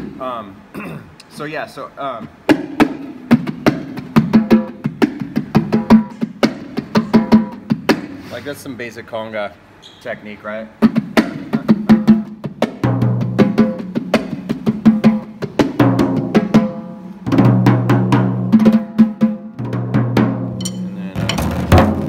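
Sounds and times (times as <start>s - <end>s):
hand drums playing: 2.4s - 8.1s, 10.8s - 22.0s.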